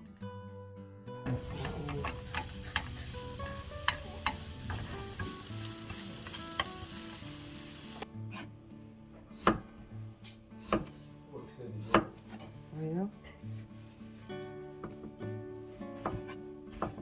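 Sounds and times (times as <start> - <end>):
pork sizzling: 1.3 - 8.1.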